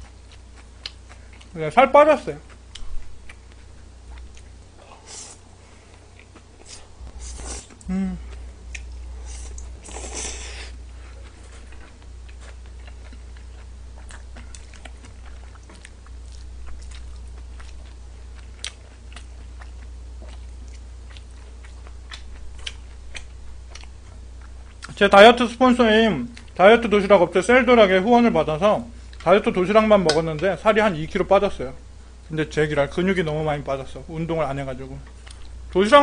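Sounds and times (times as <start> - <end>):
low steady hum: 0.0 - 36.0
chewing noodles: 2.4 - 25.0
slurping: 6.6 - 7.9, 9.2 - 11.7.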